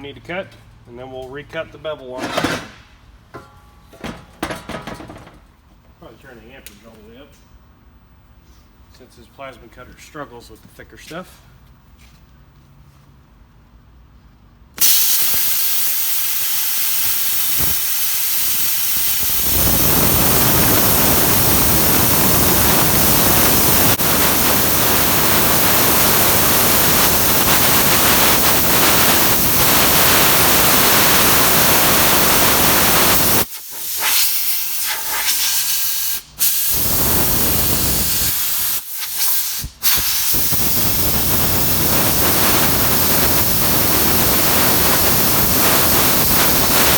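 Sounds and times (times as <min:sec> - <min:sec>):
plasma cutter hissing: 0:14.8 - 0:46.9.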